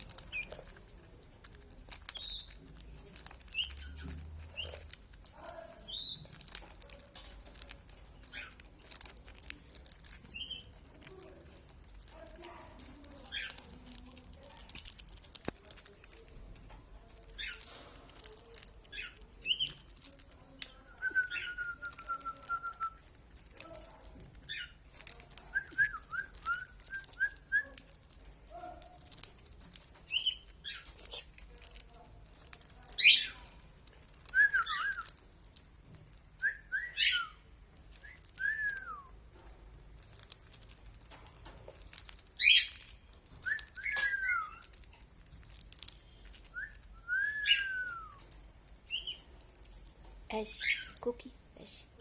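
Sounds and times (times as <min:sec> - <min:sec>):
cage birds chirping and whistling: 0:00.0 - 0:00.8, 0:01.9 - 0:05.0, 0:05.7 - 0:10.9, 0:17.2 - 0:23.2, 0:24.4 - 0:28.6, 0:29.3 - 0:31.4, 0:32.7 - 0:39.4, 0:41.1 - 0:51.2.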